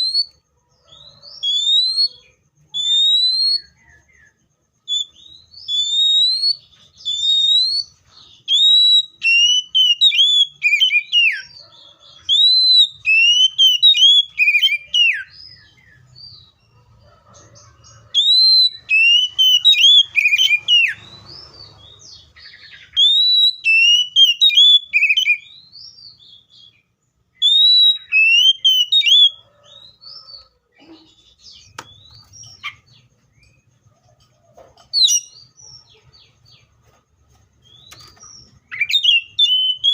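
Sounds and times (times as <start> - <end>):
bird singing whistled phrases: 0.0 - 0.4, 1.3 - 4.0, 4.9 - 11.6, 12.2 - 15.8, 18.1 - 21.3, 22.4 - 26.8, 27.4 - 30.3, 38.7 - 39.9.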